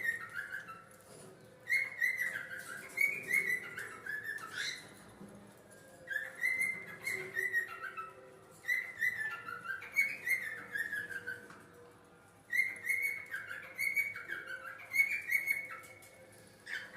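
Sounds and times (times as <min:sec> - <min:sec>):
budgerigars chirping: 0:00.0 - 0:01.0, 0:01.7 - 0:05.0, 0:06.1 - 0:11.5, 0:12.5 - 0:16.0.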